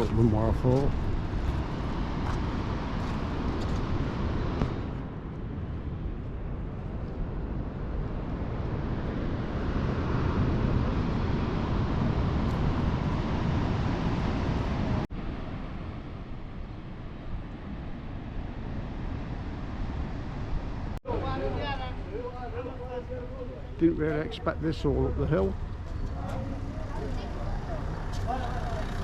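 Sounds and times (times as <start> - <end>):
vehicle rumbling in motion: 22.5 - 29.0.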